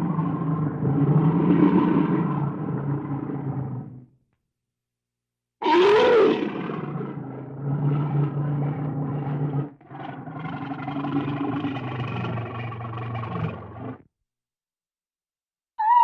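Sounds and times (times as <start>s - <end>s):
large animal loud call: 15.8s - 16.0s.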